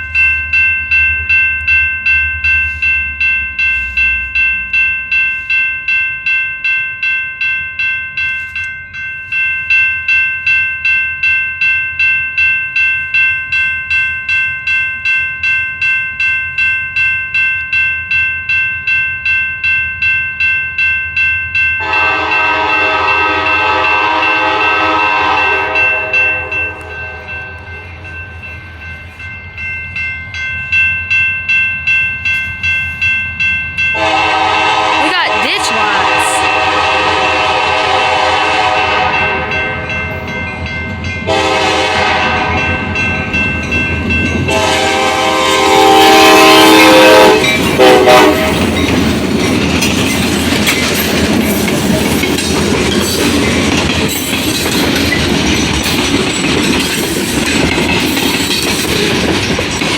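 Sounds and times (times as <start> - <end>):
railroad bell clanging: 0.0 - 59.9
locomotive horn blast: 21.8 - 26.6, 34.0 - 35.4, 36.0 - 39.5, 41.3 - 42.6, 44.5 - 48.6.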